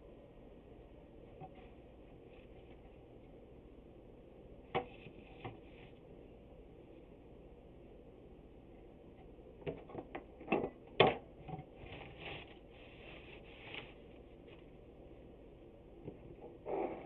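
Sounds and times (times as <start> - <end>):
rustling: 11.8 - 14.8.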